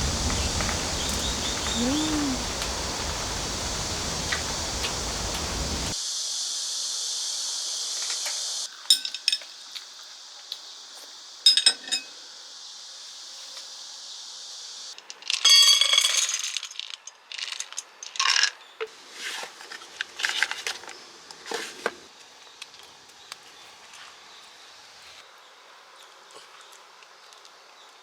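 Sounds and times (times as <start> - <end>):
rain hiss: 0.0 - 11.5, 12.1 - 15.1.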